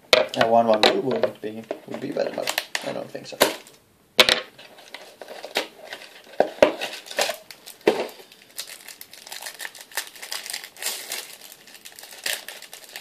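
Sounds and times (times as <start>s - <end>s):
wrapper crinkling and tearing: 1.9s - 3.7s, 4.8s - 13.0s.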